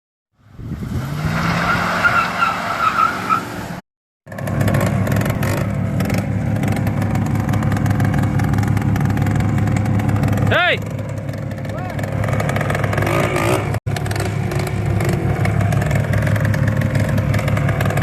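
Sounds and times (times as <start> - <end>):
diesel engine running: 4.3 - 18.0.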